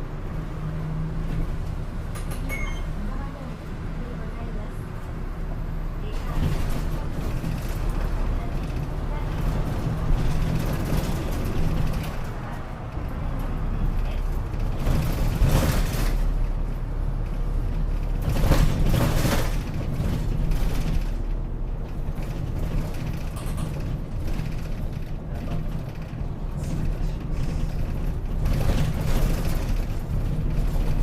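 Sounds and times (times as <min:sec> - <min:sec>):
bus engine low rumble: 0:00.0 - 0:31.0
body rattles and creaks: 0:06.1 - 0:31.0.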